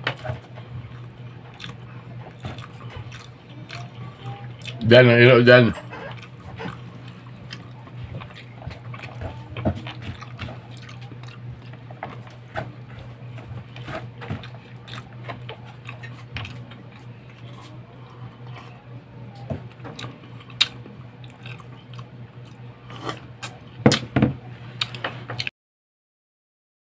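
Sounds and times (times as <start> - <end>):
steady low hum: 0.0 - 25.5
wet chewing and lip smacks: 0.9 - 4.0, 6.0 - 12.4, 13.8 - 18.8, 19.9 - 23.6.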